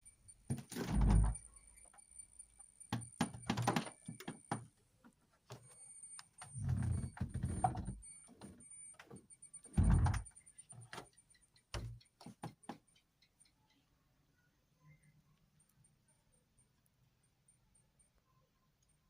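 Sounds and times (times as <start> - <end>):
faint high-pitched whine: 0.0 - 19.0
knocks and clattering handling: 2.9 - 4.7.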